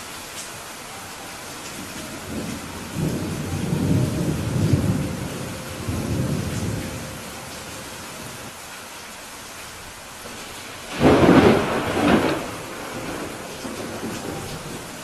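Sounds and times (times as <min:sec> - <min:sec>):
rain hissing: 0:00.0 - 0:15.0
rolling thunder rumble: 0:01.4 - 0:08.5, 0:10.3 - 0:15.0.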